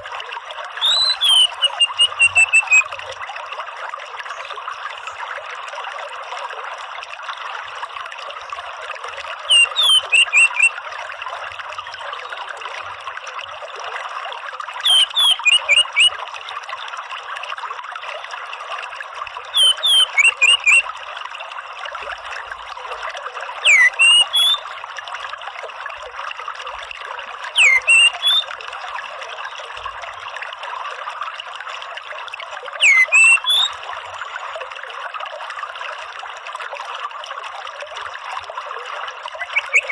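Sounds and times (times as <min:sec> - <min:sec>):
trickle of running water: 0:00.0 - 0:39.9
thrush calling: 0:00.8 - 0:02.9, 0:09.5 - 0:10.8, 0:14.8 - 0:16.2, 0:19.6 - 0:20.9, 0:23.6 - 0:24.6, 0:27.6 - 0:28.5, 0:32.8 - 0:33.7, 0:39.4 - 0:39.9.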